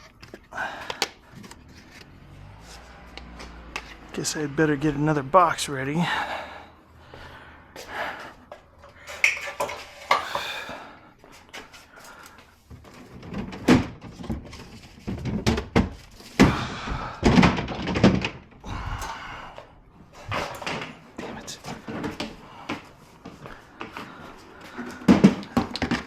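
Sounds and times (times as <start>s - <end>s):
parts thunking and clattering: 12.7s - 18.6s, 20.1s - 24.1s, 24.7s - 26.0s.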